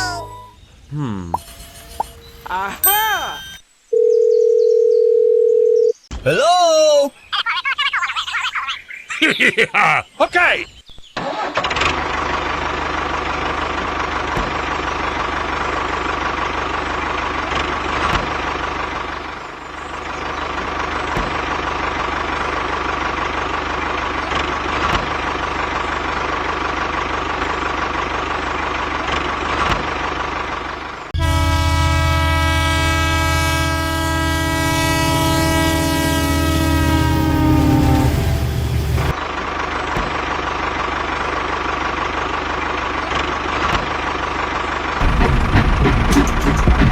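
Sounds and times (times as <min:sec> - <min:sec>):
vehicle engine drone: 0:00.0 - 0:02.9, 0:11.2 - 0:46.9
loud horn blast: 0:31.2 - 0:39.1.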